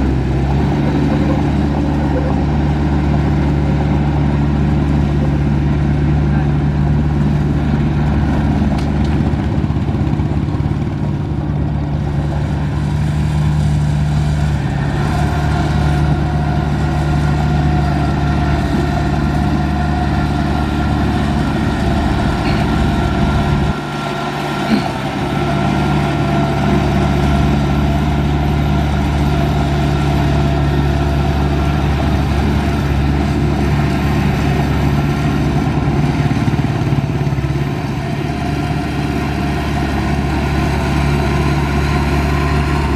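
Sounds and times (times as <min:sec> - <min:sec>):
diesel engine running: 0:00.0 - 0:42.9
high whine: 0:12.6 - 0:29.5.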